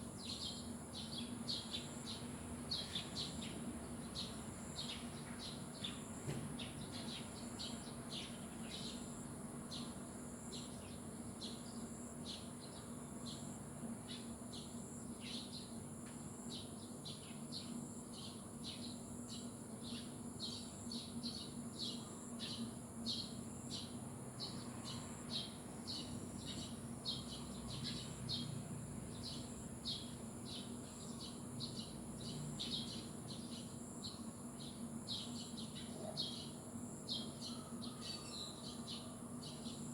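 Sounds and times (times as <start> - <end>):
small birds chirping: 16.5 - 39.9.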